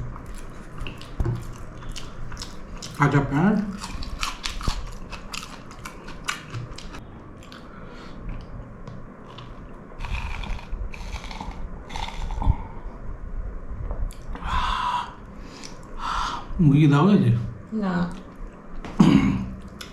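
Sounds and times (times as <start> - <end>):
person chewing crunchy onion: 0.0 - 8.6, 9.2 - 12.7.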